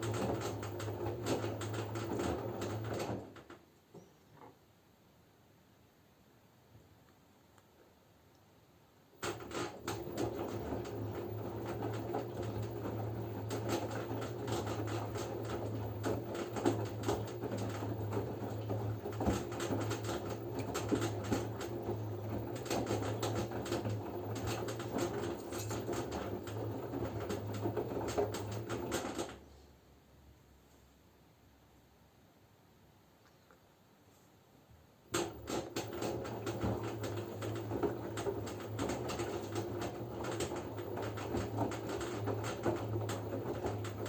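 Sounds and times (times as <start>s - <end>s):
washing machine drum turning: 9.2s - 29.2s, 35.1s - 44.0s.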